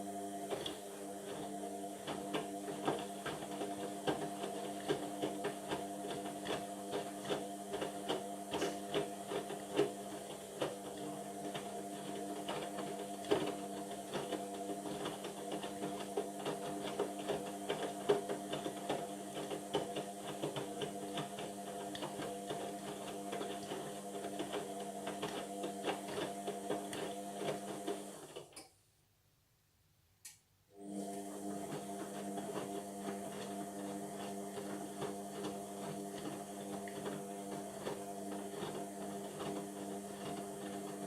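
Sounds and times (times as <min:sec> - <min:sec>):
washing machine motor hum: 0:00.0 - 0:28.5, 0:30.7 - 0:41.0.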